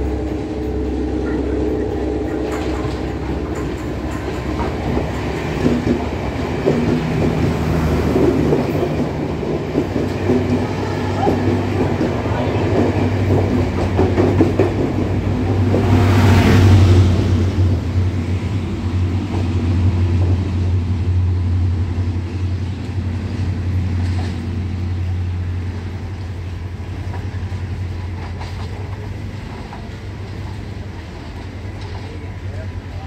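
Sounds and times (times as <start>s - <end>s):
low diesel drone: 0.0s - 33.0s
train passing with rumble: 0.0s - 33.0s.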